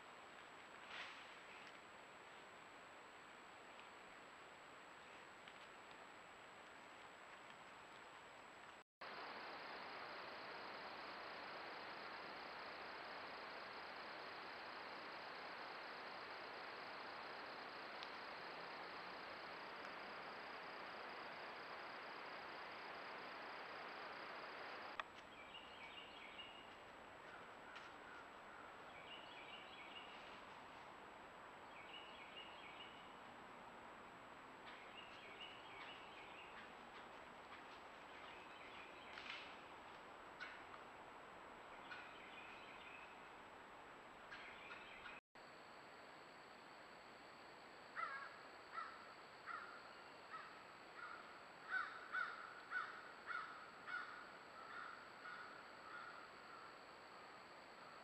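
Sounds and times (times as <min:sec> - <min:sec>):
microphone hiss: 0:00.0 - 0:27.8
songbird singing faintly: 0:06.6 - 0:58.0.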